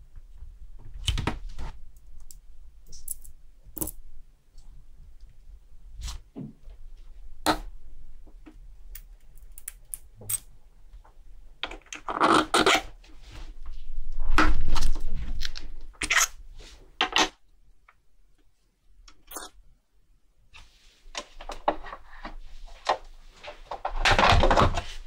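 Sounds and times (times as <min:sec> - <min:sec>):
small metal parts clicking: 0:02.2 - 0:04.0.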